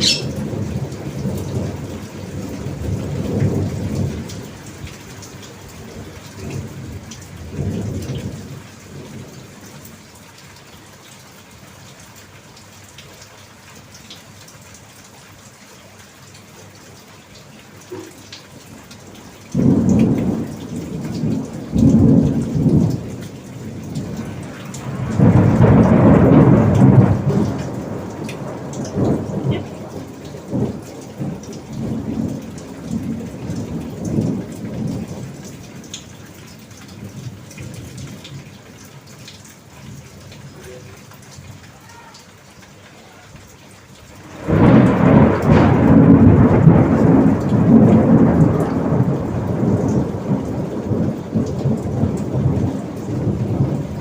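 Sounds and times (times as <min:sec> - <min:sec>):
thunder rumbling: 0:00.0 - 0:04.6, 0:19.6 - 0:35.9, 0:44.2 - 0:54.0
steady rain hiss: 0:00.0 - 0:54.0.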